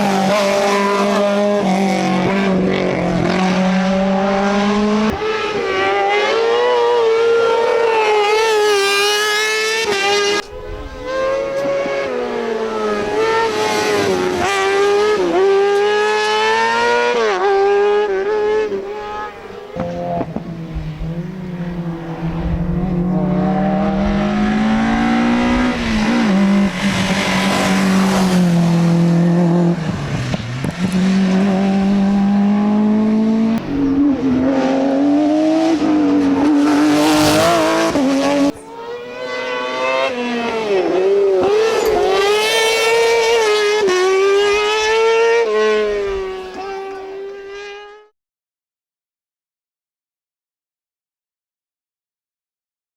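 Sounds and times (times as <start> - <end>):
engine revving through gears: 0.0 - 10.4, 19.8 - 48.0
rally car engines at full throttle: 0.0 - 48.1.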